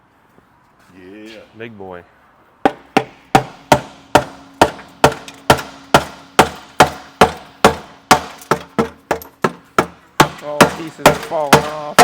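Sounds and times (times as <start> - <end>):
hammer striking metal engine: 2.7 - 12.0.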